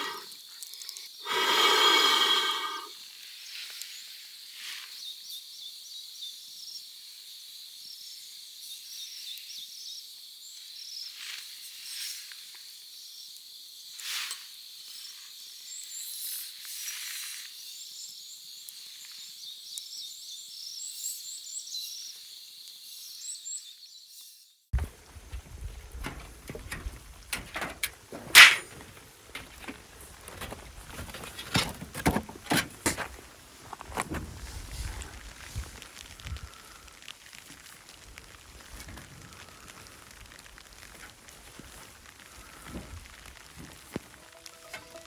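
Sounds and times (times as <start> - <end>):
night insects chirring: 0.0 - 3.3
short crackles: 32.8 - 45.0.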